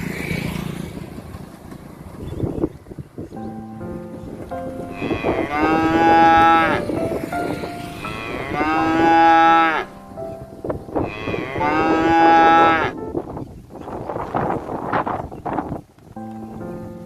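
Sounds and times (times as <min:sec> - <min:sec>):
cow mooing: 0:04.9 - 0:06.8, 0:08.0 - 0:09.9, 0:11.0 - 0:13.0.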